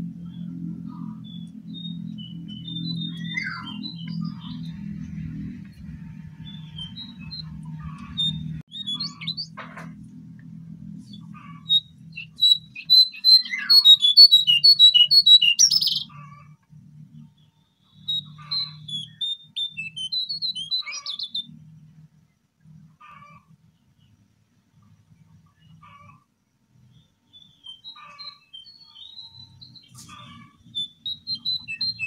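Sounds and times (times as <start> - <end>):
low hum: 0.0 - 12.9
bird singing high chirps: 0.2 - 9.6, 11.0 - 16.3, 17.2 - 21.8, 26.9 - 32.0.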